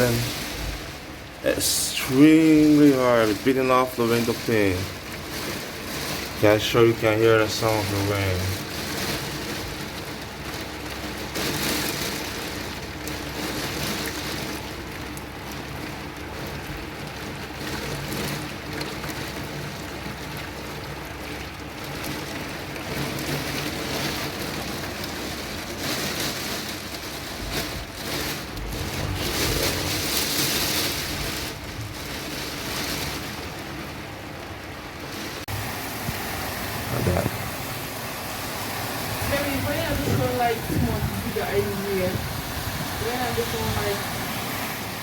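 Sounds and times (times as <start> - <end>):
heavy rain against window: 0.0 - 45.0.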